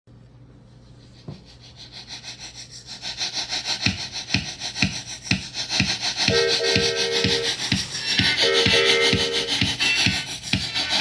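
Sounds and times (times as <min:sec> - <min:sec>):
rushing hiss with rhythmic chugs: 0:02.9 - 0:11.0
steady musical chord: 0:06.3 - 0:09.9.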